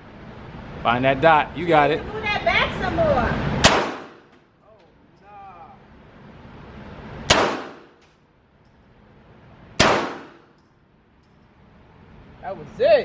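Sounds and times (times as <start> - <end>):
pistol shots: 3.6 - 4.3, 7.3 - 8.0, 9.8 - 10.6.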